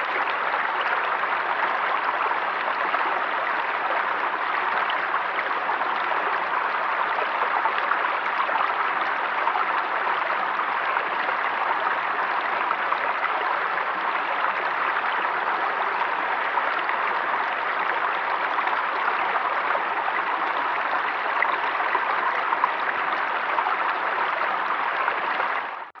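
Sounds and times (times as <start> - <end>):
river water rushing and babbling: 0.0 - 25.9.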